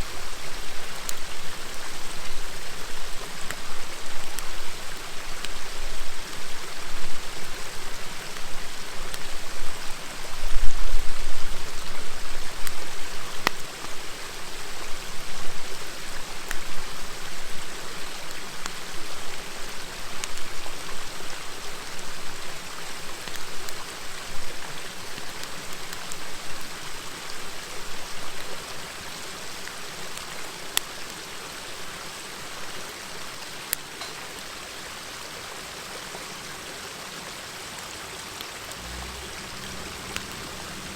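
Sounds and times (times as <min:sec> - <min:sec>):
river babbling: 0:00.0 - 0:40.9
bonfire crackling: 0:00.2 - 0:31.9, 0:37.7 - 0:40.9
low rumble: 0:38.8 - 0:40.9.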